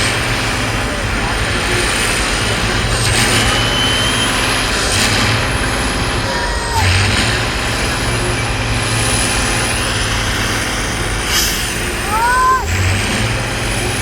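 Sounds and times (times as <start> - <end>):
diesel truck engine running: 0.0 - 14.0
short bursts of hiss: 11.2 - 11.9.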